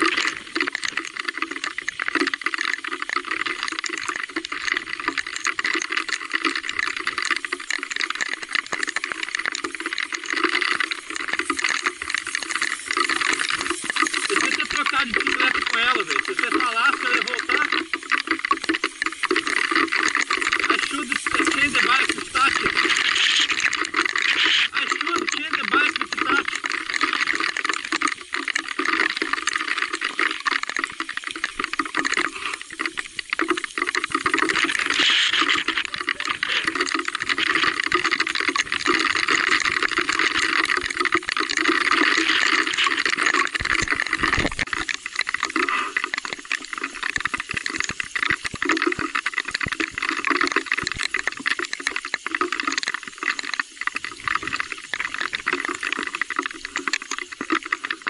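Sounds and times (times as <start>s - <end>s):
heavy rain: 12.7s - 26.8s, 34.4s - 38.7s, 41.5s - 44.7s.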